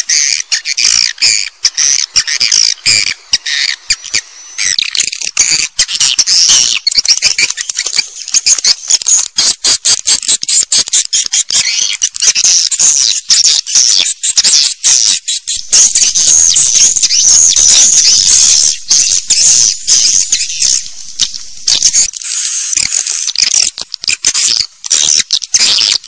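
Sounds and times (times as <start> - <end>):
swiftlets twittering chirps: 0.0 - 26.0.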